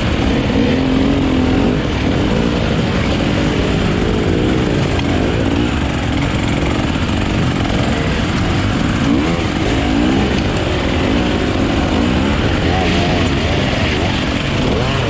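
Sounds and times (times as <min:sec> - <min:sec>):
dirt bike engine revving: 0:00.0 - 0:15.0
steady rumble: 0:00.0 - 0:15.0.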